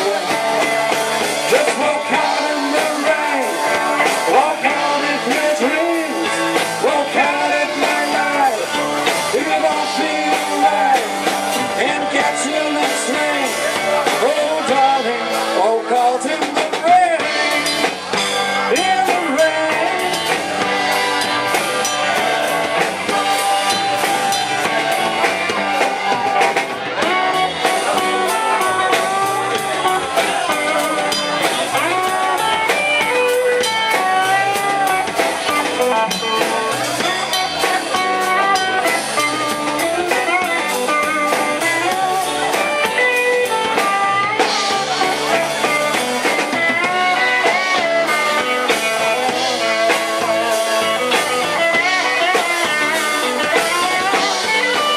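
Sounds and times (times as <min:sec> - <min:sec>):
blues-rock band playing: 0:00.0 - 0:54.9
drum kit: 0:00.0 - 0:54.9
lead guitar solo: 0:16.5 - 0:54.9.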